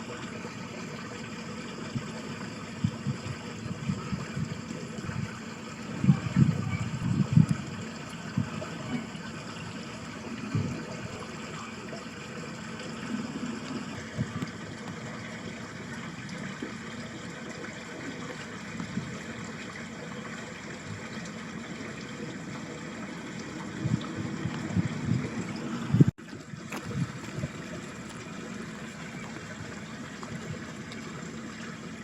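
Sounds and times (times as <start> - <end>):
water flowing in a ditch: 0.0 - 32.0
wind buffeting microphone: 2.7 - 9.6, 23.6 - 27.9.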